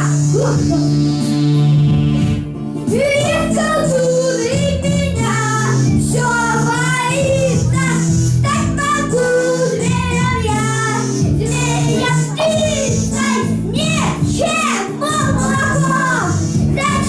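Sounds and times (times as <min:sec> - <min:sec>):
instrumental accompaniment: 0:00.0 - 0:17.0
children singing: 0:02.9 - 0:17.0.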